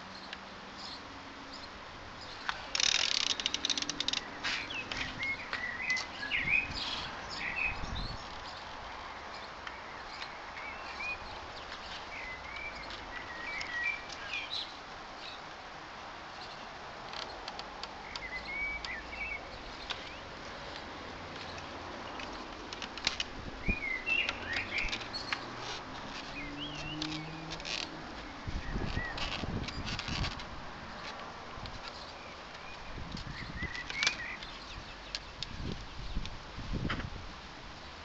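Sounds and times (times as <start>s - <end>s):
songbirds chirping: 0.0s - 38.0s
ratchet wrench clicking: 2.7s - 4.2s.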